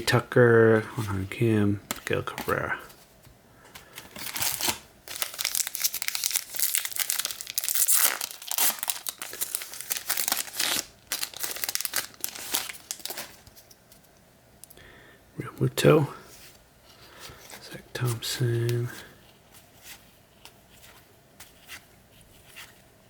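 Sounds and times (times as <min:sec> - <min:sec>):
foil wrapper tearing and crinkling: 0:04.1 - 0:13.5.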